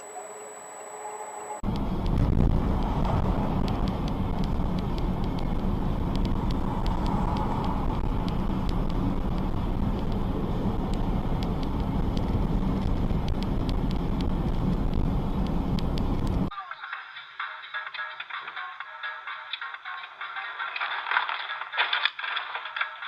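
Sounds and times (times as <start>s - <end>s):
vehicle engine and road rumble: 1.6s - 16.5s.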